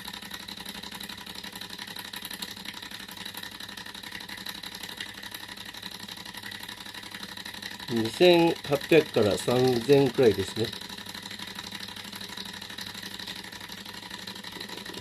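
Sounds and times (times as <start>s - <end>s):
small engine mechanical chatter: 0.0s - 15.0s
steady high whine: 7.9s - 15.0s.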